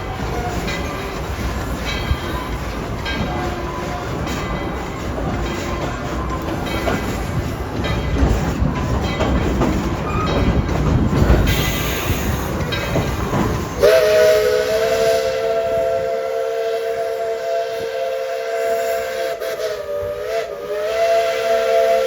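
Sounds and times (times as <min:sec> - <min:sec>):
train cars rumbling and clattering: 0:00.0 - 0:22.0
steam locomotive chime whistle: 0:11.4 - 0:22.0.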